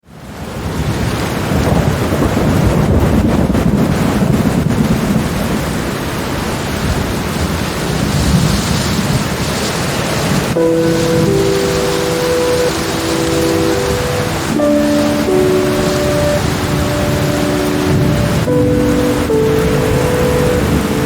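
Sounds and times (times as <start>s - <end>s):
heavy rain: 0.0s - 21.0s
low rumble of thunder: 0.6s - 6.1s, 6.8s - 9.6s.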